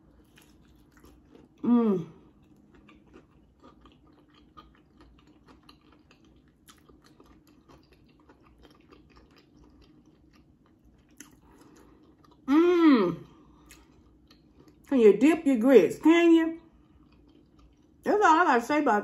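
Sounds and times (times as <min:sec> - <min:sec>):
mouth chewing sounds: 0:00.0 - 0:12.5, 0:13.4 - 0:14.9, 0:16.7 - 0:18.0.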